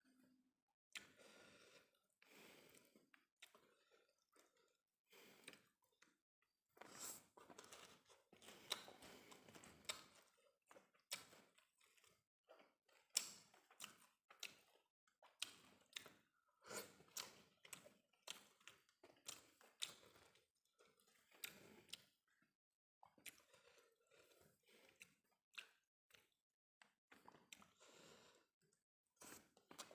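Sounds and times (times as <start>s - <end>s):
wet lip smacks and mouth clicks: 0.9s - 1.2s, 24.8s - 26.4s
chewing rice: 0.9s - 29.9s.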